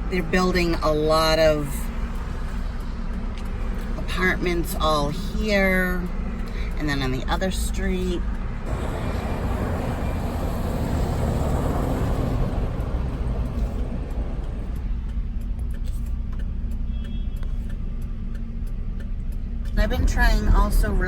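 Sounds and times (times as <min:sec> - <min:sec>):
engine and road rumble: 0:00.0 - 0:21.0
rushing noise: 0:08.6 - 0:15.0.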